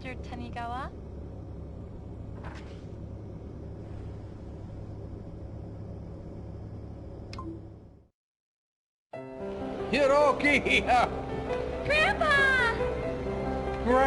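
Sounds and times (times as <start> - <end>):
vehicle engine rumble: 0.0 - 8.1.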